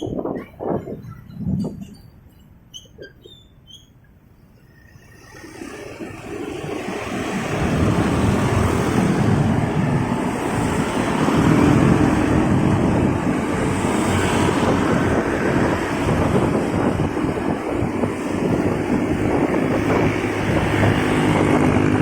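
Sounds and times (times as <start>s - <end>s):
wind rushing over microphone: 0.0s - 2.3s, 5.3s - 22.0s
motorcycle engine: 4.8s - 22.0s.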